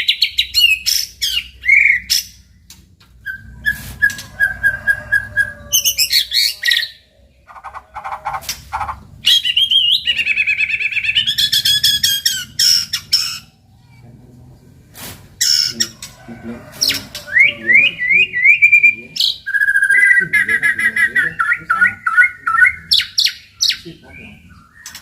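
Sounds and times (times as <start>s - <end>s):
bird singing whistles and trills: 17.3s - 25.0s.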